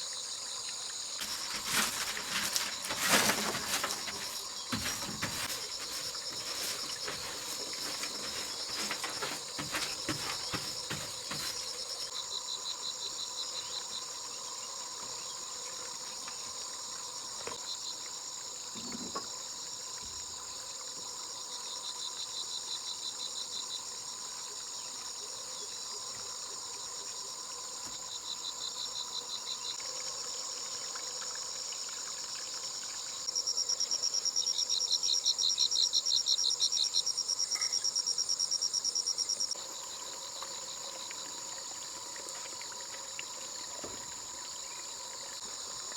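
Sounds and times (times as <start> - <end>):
insects chirping: 0.0 - 45.9
rapid pulsed insect trills: 0.0 - 45.9.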